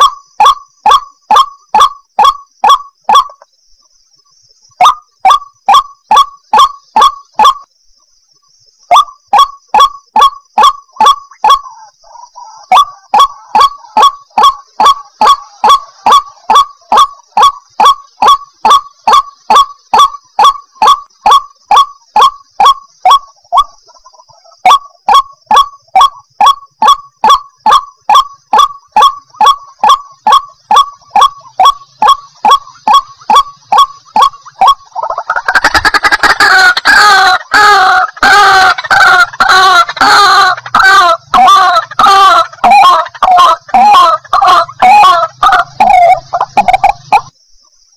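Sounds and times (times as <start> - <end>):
waterhen croaking calls: 0.0 - 3.5, 4.7 - 7.7, 8.4 - 47.4.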